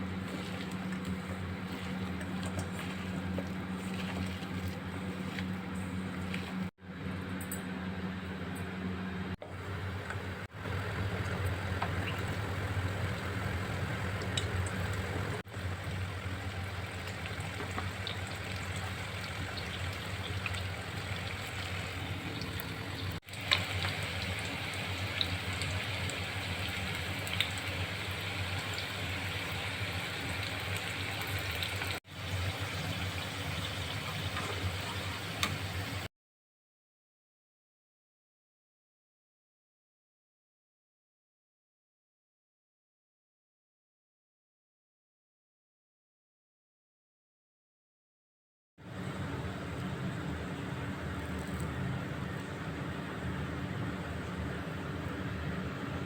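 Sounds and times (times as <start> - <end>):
fritters sizzling in oil: 9.9 - 36.1.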